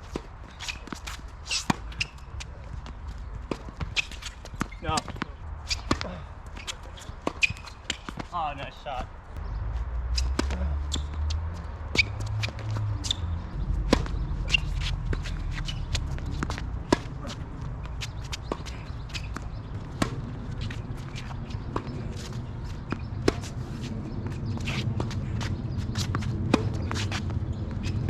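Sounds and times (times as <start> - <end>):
tennis balls struck and bouncing: 0.1 - 9.1, 10.2 - 28.0
footsteps and shoe scuffs: 9.6 - 28.0.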